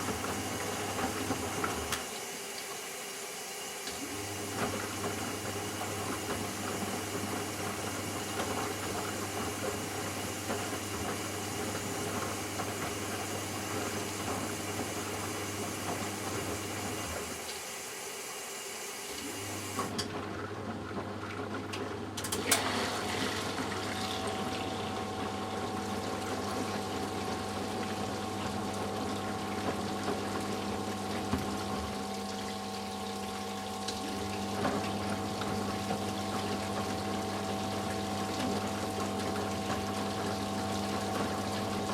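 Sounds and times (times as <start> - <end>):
washing machine hum: 0.0 - 41.9
water running into washing machine: 0.0 - 41.9.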